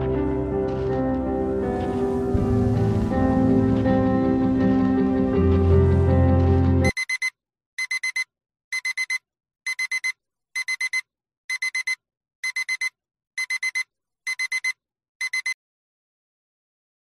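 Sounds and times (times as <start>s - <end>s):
music: 0.0s - 6.9s
alarm clock beeping: 6.8s - 15.6s.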